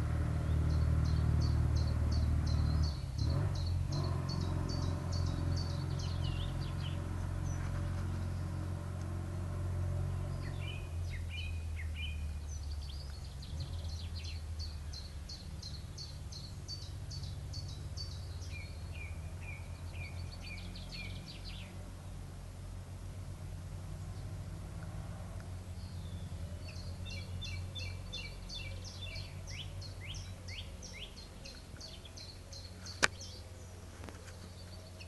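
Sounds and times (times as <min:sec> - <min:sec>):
small birds chirping: 0:00.0 - 0:09.2, 0:10.0 - 0:22.1, 0:23.8 - 0:35.0.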